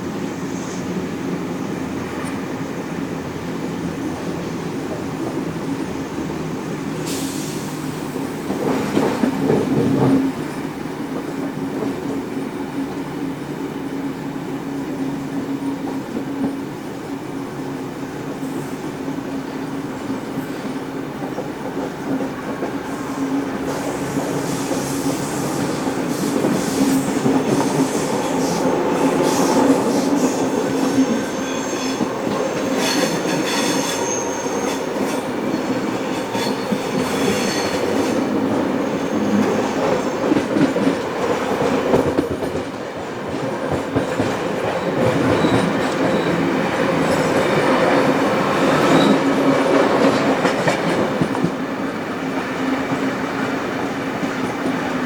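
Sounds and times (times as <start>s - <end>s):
steam train rumbling on rails: 0.0s - 55.0s
high wheel squeal: 23.7s - 40.2s, 44.8s - 47.4s, 48.0s - 49.5s.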